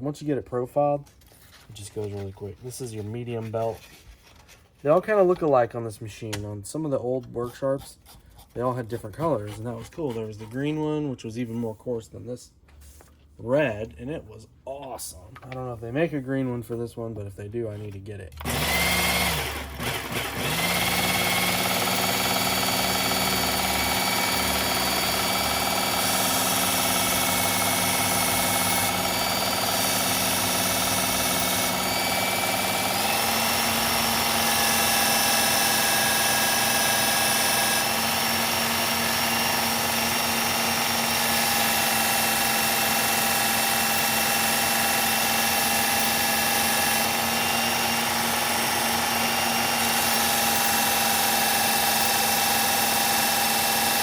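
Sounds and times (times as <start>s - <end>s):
belt sharpener motor whine: 18.4s - 54.0s.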